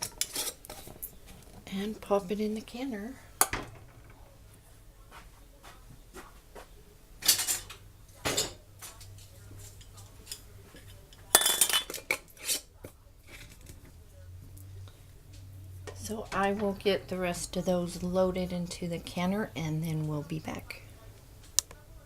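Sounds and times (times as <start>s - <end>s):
glass jars clinking: 11.3s - 12.6s.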